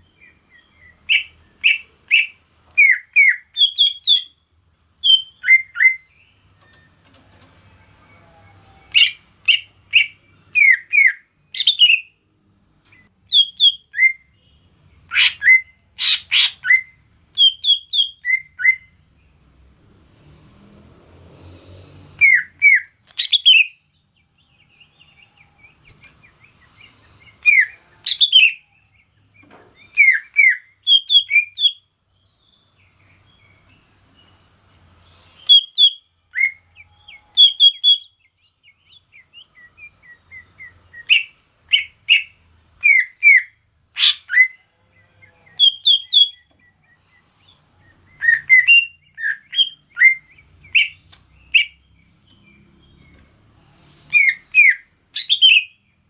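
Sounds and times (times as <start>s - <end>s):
bird whistling sharp notes: 8.9s - 12.1s, 22.2s - 23.8s, 29.9s - 31.8s, 39.8s - 44.6s, 48.1s - 51.8s, 54.1s - 55.8s.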